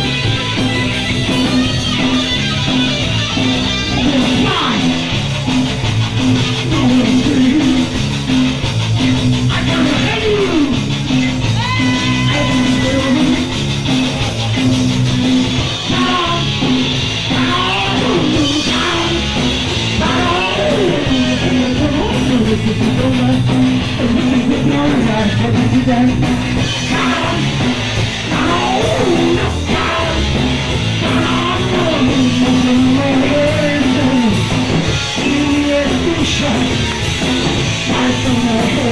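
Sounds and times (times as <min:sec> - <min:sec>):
punk rock band playing: 0:00.0 - 0:38.9
person singing: 0:06.6 - 0:08.0, 0:09.5 - 0:10.9, 0:11.5 - 0:13.6, 0:15.6 - 0:34.5, 0:35.1 - 0:37.0, 0:37.8 - 0:38.9.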